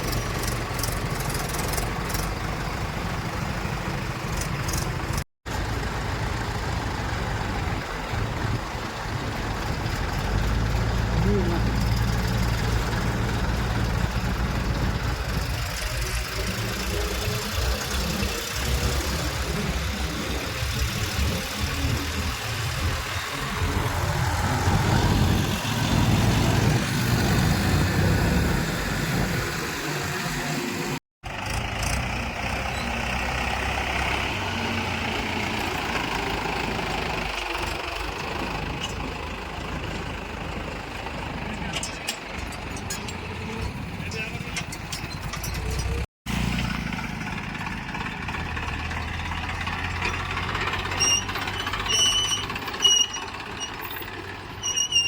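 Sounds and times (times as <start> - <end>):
heavy machinery diesel engines: 0.0 - 55.0.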